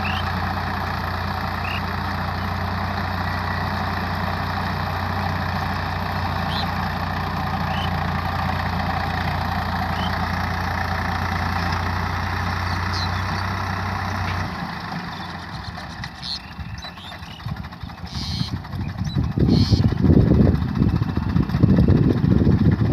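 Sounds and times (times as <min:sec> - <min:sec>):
tractor diesel engine idling: 0:00.0 - 0:22.9.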